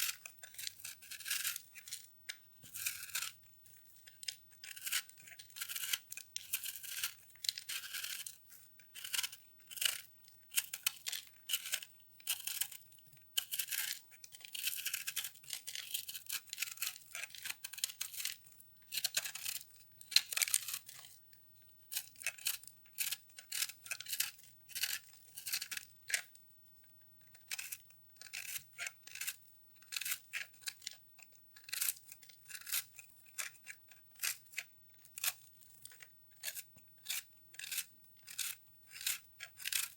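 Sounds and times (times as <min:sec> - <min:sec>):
crunching brittle foam: 0:00.0 - 0:08.4.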